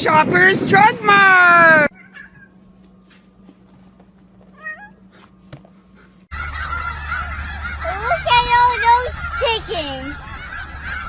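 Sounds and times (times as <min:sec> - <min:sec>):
outdoor noise: 0:00.0 - 0:11.0
cat meowing: 0:01.9 - 0:02.5, 0:04.5 - 0:05.0
geese calling: 0:04.5 - 0:11.0.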